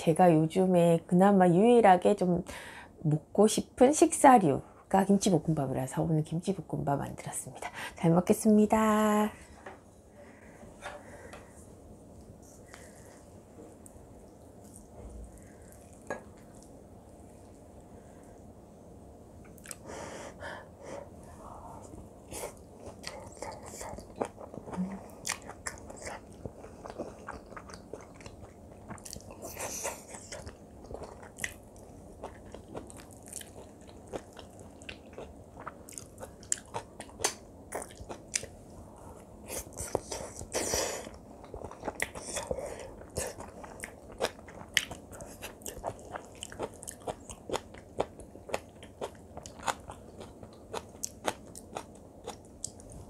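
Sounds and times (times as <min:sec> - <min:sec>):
person chewing food: 0:13.8 - 0:17.9, 0:19.5 - 0:19.9, 0:22.3 - 0:38.6, 0:39.2 - 0:53.0.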